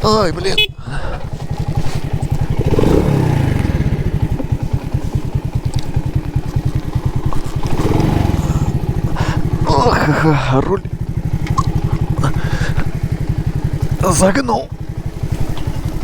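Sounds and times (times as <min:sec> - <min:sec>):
moped engine idling: 0:00.0 - 0:16.0.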